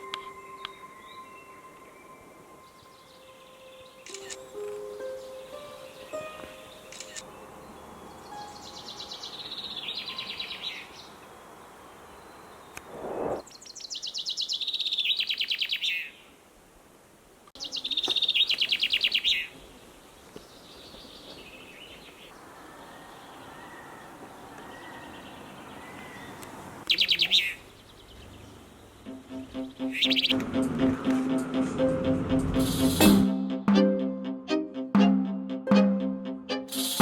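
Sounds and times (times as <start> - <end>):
songbird trilling: 26.9 - 27.6, 29.8 - 30.4.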